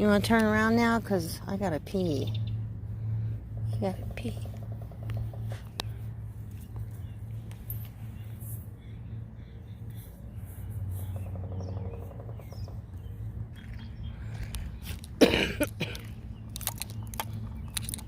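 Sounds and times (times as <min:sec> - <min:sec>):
steady low rumble: 0:00.0 - 0:18.0
person coughing: 0:15.2 - 0:16.1.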